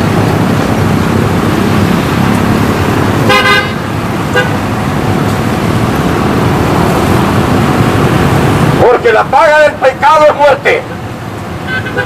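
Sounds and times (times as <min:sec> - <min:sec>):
steady rushing noise: 0:00.0 - 0:12.0
vehicle horn toots: 0:03.2 - 0:04.6, 0:11.6 - 0:12.0.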